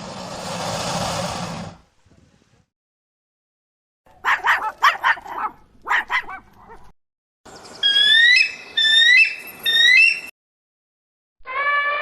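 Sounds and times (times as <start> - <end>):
dog barking: 4.1 - 6.9.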